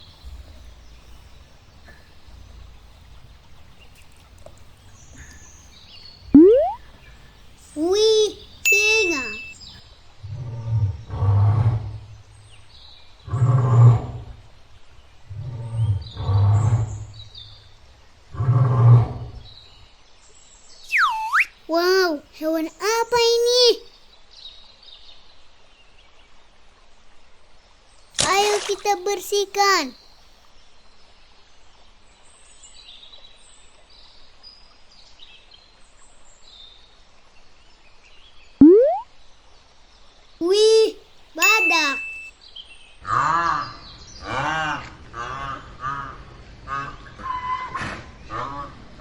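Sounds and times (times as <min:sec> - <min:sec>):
faint birds chirping: 0:00.0 - 0:09.8, 0:20.9 - 0:23.9, 0:40.4 - 0:42.3
faint high chirps: 0:06.4 - 0:06.8, 0:07.8 - 0:09.8, 0:38.6 - 0:39.0, 0:40.4 - 0:42.3.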